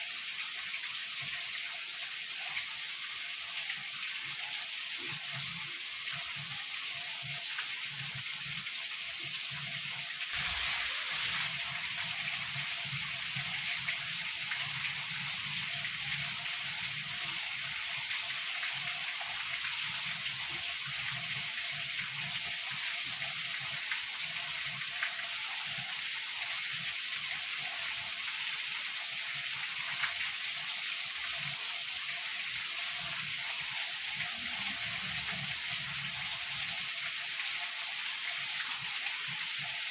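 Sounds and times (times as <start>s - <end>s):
heavy rain falling: 10.4s - 11.8s.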